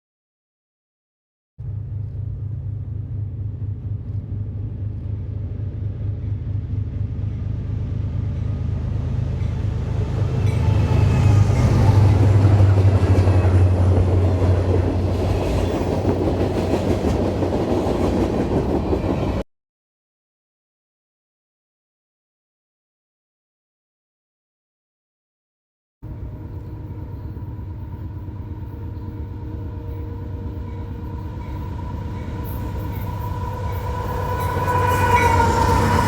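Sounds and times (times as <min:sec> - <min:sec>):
locomotive engine drone: 0:01.6 - 0:16.7, 0:26.0 - 0:36.0
train wheels rattling on rails: 0:08.2 - 0:19.4.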